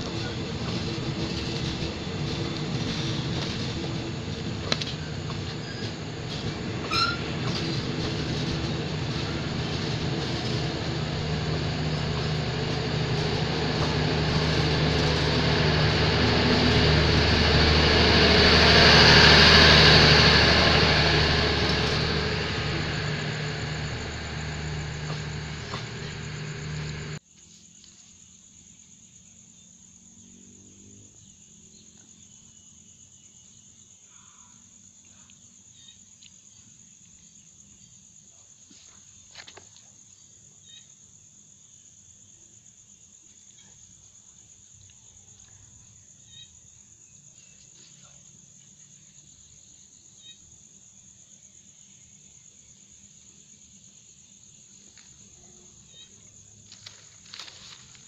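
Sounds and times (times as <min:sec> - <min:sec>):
train wheels rumbling: 0:00.0 - 0:27.2, 0:56.0 - 0:58.0
wheels clacking over rail joints: 0:00.0 - 0:27.2, 0:54.9 - 0:58.0
insects chirping: 0:00.0 - 0:58.0.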